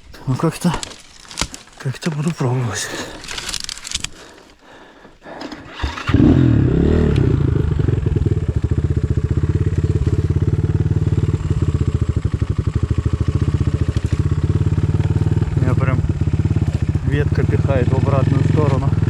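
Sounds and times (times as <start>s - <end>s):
motorcycle engine starting and running: 5.2s - 19.0s.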